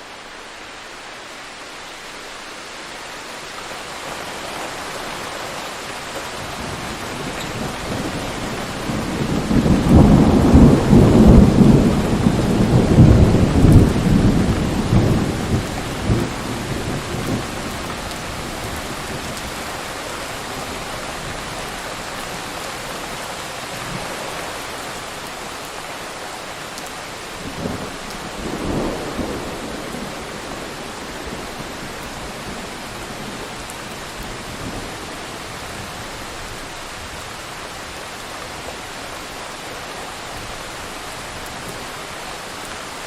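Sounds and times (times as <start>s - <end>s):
steady rain: 0.0s - 43.0s
rolling thunder rumble: 6.4s - 19.6s, 27.4s - 36.1s.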